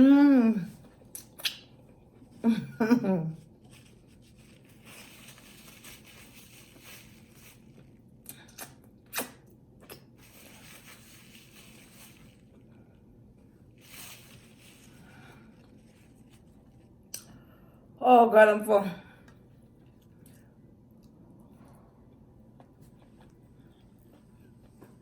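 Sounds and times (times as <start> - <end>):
soft chewing and mouth noises: 0.6 - 2.4, 3.4 - 17.8, 19.2 - 25.0
short mouth clicks: 1.1 - 1.7, 8.3 - 10.0.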